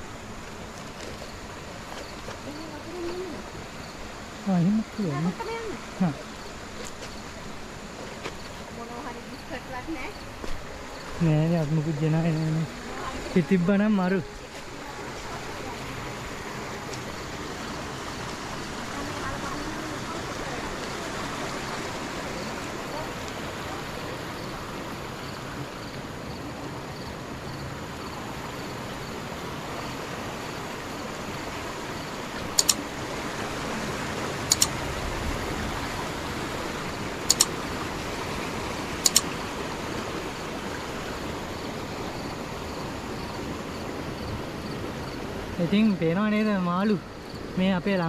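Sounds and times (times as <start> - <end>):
stream flowing: 0.0 - 48.0
sharp double clicks: 32.6 - 32.8, 34.5 - 34.8, 37.3 - 37.6, 39.0 - 39.3.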